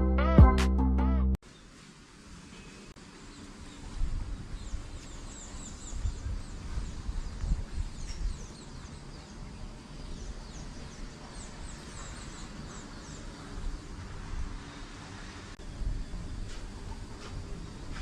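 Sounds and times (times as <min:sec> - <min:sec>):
birds chirping: 0:03.3 - 0:13.9.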